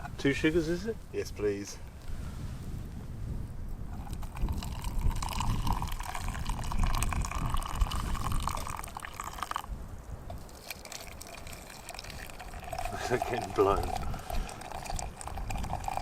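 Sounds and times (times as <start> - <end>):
hot water pouring into mug: 4.0 - 9.7, 10.3 - 16.0.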